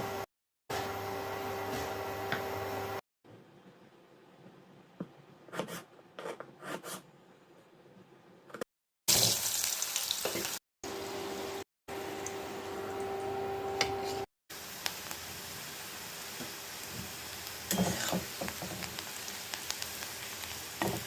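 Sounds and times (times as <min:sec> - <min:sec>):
greens sizzling in a pan: 0:09.1 - 0:10.6, 0:14.5 - 0:21.0.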